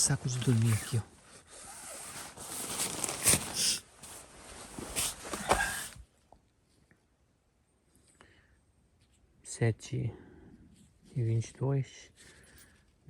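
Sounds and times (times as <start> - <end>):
sleeping bag rustling: 0.0 - 6.0.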